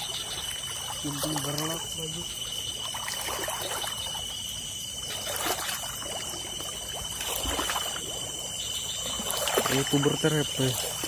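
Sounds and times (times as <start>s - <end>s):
shallow water splashing: 0.0s - 11.0s.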